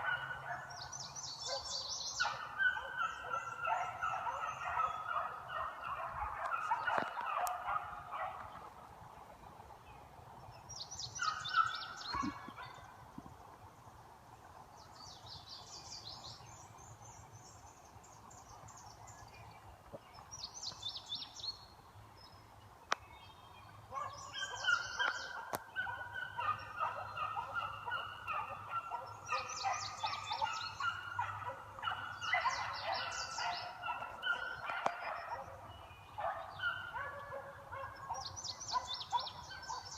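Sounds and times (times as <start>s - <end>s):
beagles baying in chorus: 0.0s - 8.6s, 23.9s - 39.9s.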